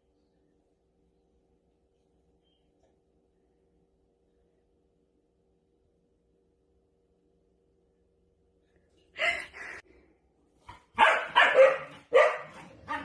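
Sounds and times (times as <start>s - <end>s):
dog barking: 10.7s - 13.0s.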